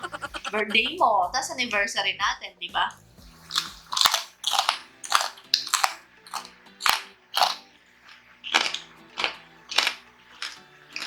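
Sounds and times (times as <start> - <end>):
crunchy food being chewed: 3.2 - 11.0.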